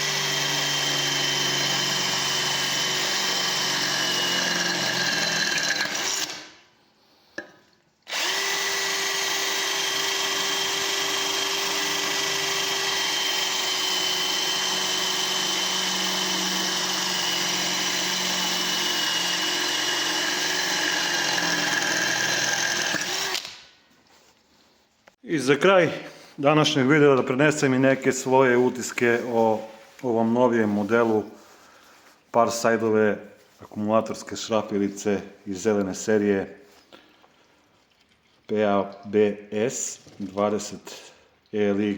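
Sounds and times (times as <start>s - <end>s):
cordless drill motor whining: 0.0s - 6.4s, 8.1s - 23.6s
drill click: 0.0s - 6.5s, 8.1s - 23.7s.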